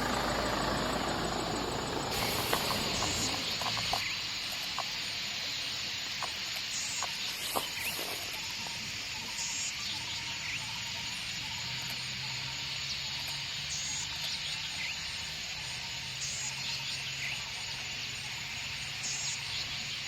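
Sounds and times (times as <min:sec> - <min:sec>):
insects chorus: 0:00.0 - 0:20.0.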